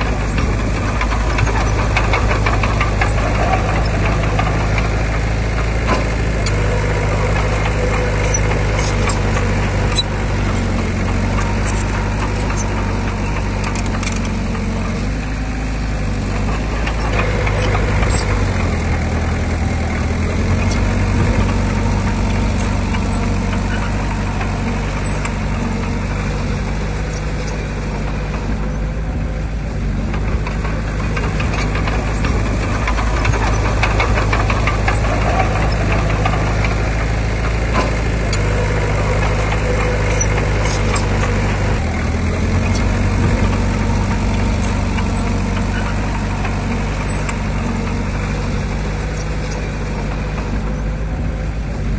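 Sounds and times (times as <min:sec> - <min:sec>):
metallic clicks and clanks: 0:00.0 - 0:28.8, 0:30.1 - 0:50.8
heavy diesel engine running: 0:00.0 - 0:51.9.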